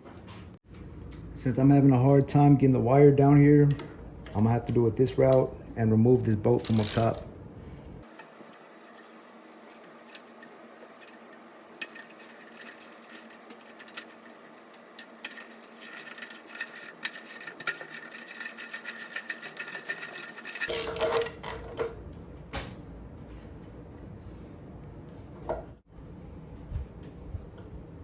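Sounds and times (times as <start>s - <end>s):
ratchet wrench clicking: 6.6s - 7.2s.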